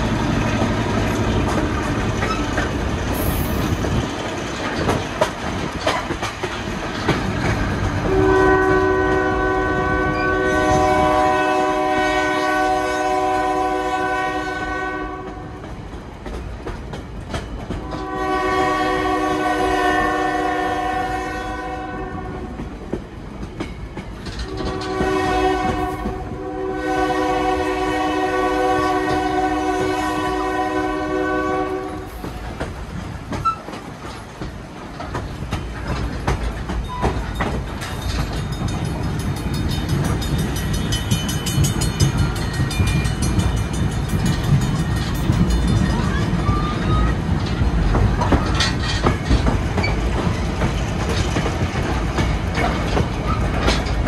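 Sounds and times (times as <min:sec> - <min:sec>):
train rumbling: 0:00.0 - 0:54.0
train horn blasts: 0:08.0 - 0:15.6, 0:17.8 - 0:22.6, 0:24.4 - 0:32.2.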